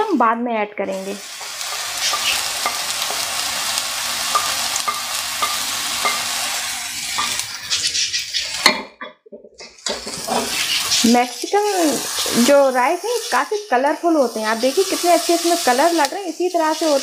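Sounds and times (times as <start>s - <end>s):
rice sizzling in hot oil: 0.9s - 8.7s, 9.8s - 17.0s
spatula scraping a plate: 9.9s - 11.1s.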